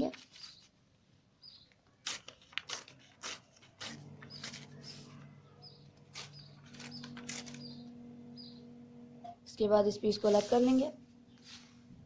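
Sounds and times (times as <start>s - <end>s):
paper tearing: 2.0s - 5.3s, 6.0s - 7.6s
steady low hum: 3.8s - 12.0s.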